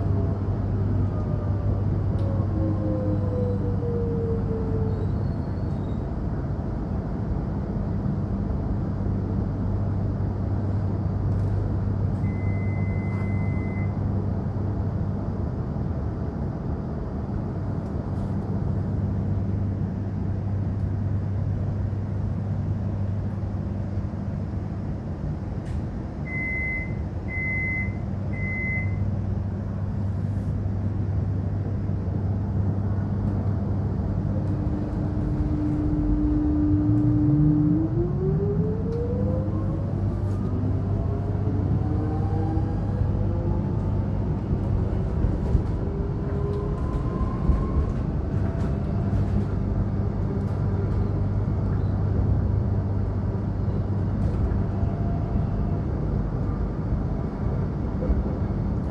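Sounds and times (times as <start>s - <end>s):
short beeps: 12.3s - 13.9s, 26.3s - 29.0s
electric train equipment humming: 29.2s - 52.2s.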